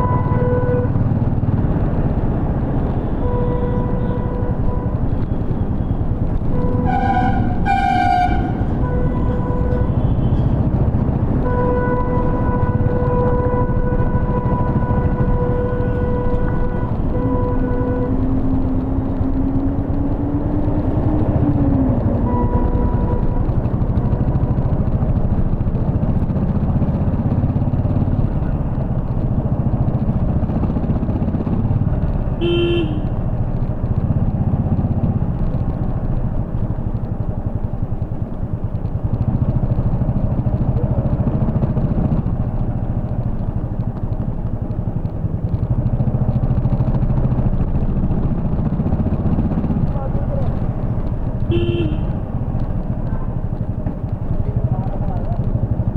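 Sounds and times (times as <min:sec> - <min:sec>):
vehicle horns honking: 0:00.0 - 0:01.1, 0:02.8 - 0:19.3, 0:21.9 - 0:25.3, 0:32.3 - 0:33.4, 0:50.0 - 0:53.6
motorcycle engine rumbling: 0:00.0 - 0:55.9.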